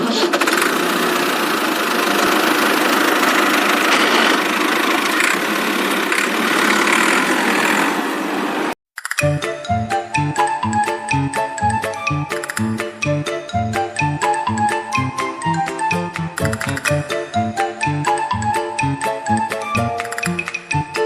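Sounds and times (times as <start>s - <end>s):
toy car whirring and rattling: 0.0s - 8.2s.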